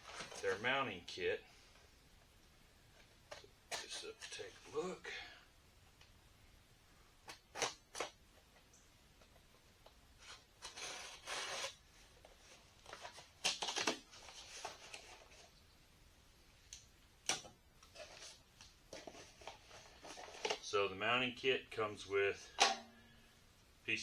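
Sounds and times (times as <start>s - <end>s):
packaging crinkling and tearing: 10.2s - 15.5s.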